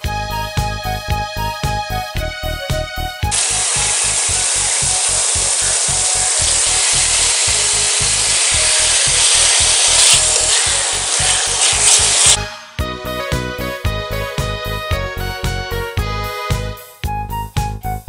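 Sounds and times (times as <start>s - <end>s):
background music with beat: 0.0s - 18.0s
food sizzling in wok: 3.3s - 12.8s.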